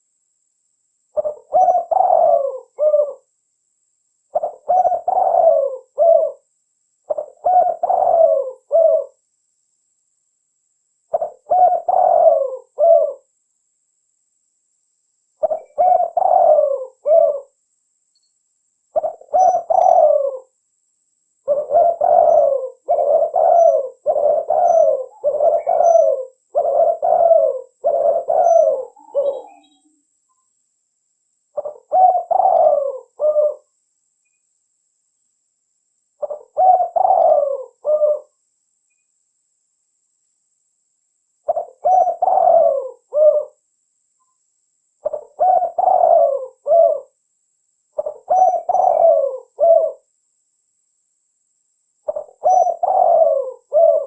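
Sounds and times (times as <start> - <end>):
dove cooing: 1.2 - 3.3, 4.3 - 6.5, 7.1 - 9.2, 11.1 - 13.3, 15.4 - 17.6, 18.9 - 20.6, 21.4 - 30.0, 31.6 - 33.7, 36.2 - 38.4, 41.4 - 43.6, 45.0 - 47.2, 48.0 - 50.1, 52.0 - 54.0.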